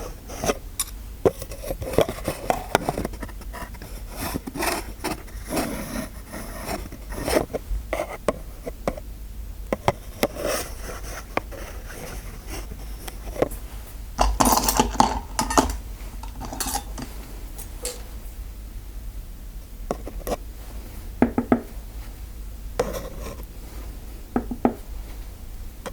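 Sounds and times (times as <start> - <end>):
scraping of hard objects: 14.2 - 18.0.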